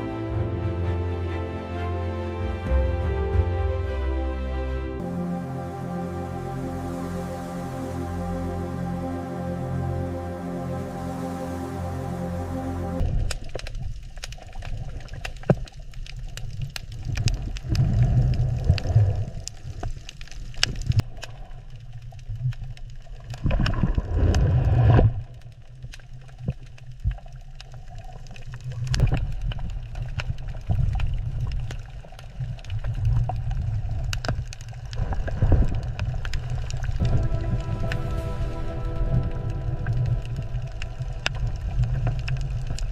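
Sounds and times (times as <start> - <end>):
low water rumble: 0.0 - 42.9
sharp clicks and crackles: 13.0 - 37.1, 40.7 - 42.9.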